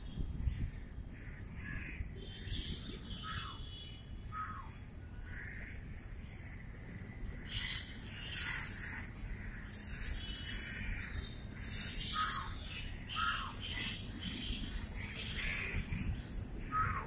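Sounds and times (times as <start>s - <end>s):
birds calling with falling notes: 7.4s - 17.0s
bursts of high hiss: 9.7s - 10.8s, 11.6s - 12.4s.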